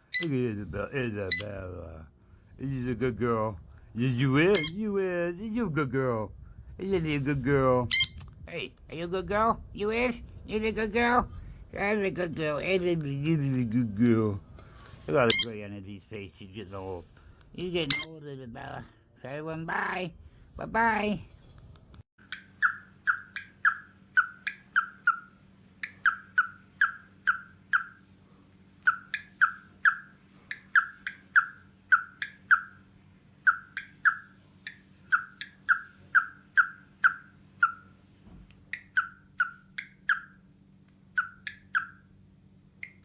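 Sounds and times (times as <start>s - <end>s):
bird giving sharp calls: 0.0s - 0.4s, 1.3s - 1.5s, 4.4s - 4.8s, 7.9s - 8.3s, 15.2s - 15.6s, 17.8s - 18.2s, 22.4s - 28.1s, 28.8s - 38.0s, 38.7s - 42.1s
steady low hum: 0.0s - 43.0s.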